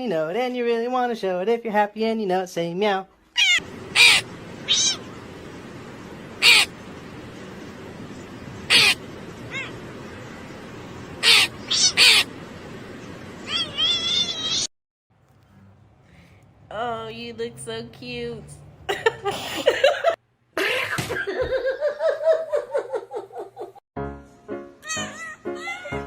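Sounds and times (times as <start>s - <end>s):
bird harsh caw calls: 3.4s - 5.3s, 6.3s - 6.8s, 8.5s - 10.4s, 11.1s - 12.4s
bird warbling call: 3.4s - 14.7s
background hiss: 3.6s - 14.6s.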